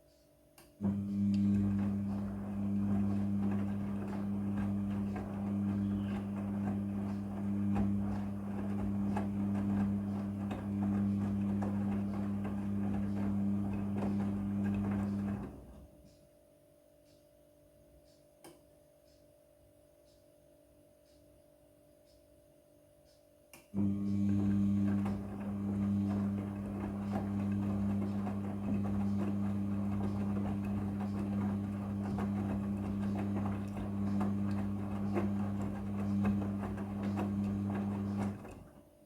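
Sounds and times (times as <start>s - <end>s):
click: 0.1s - 1.6s, 18.0s - 19.2s, 23.0s - 24.3s
washing machine churning: 0.8s - 15.9s, 23.8s - 39.0s.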